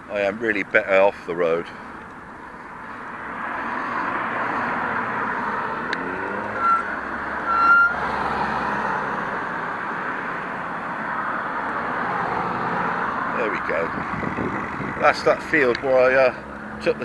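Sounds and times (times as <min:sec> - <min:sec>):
road traffic noise: 0:00.0 - 0:17.0
short high electronic beeps: 0:06.4 - 0:08.0.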